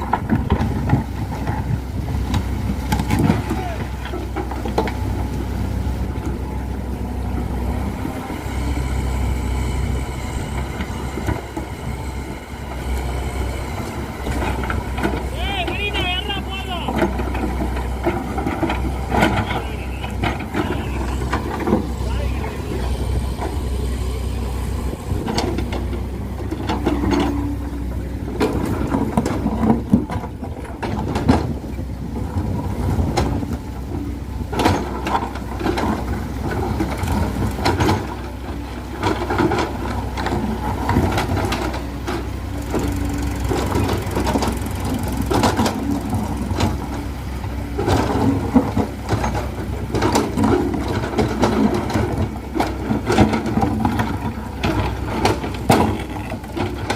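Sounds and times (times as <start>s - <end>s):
heavy diesel engine running: 0.0s - 56.9s
knocks and rattles: 39.0s - 47.0s, 47.8s - 56.9s.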